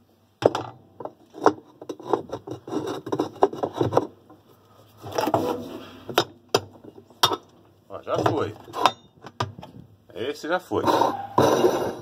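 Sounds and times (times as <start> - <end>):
wrench knocking and scraping: 0.4 - 4.4, 5.1 - 9.7.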